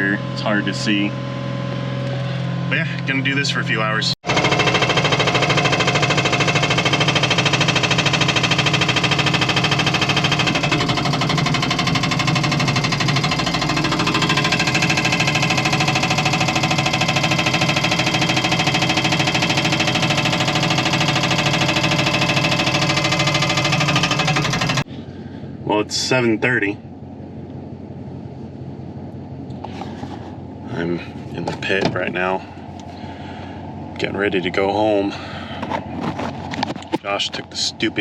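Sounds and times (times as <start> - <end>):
skid steer engine running: 0.0 - 25.3
hydraulic breaker pounding rock: 4.2 - 24.9.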